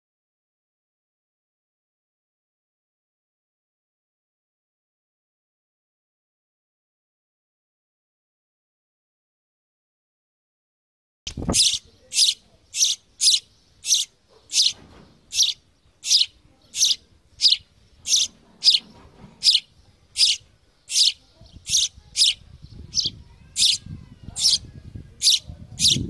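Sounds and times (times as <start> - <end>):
sparrow chirping: 11.3 - 26.0.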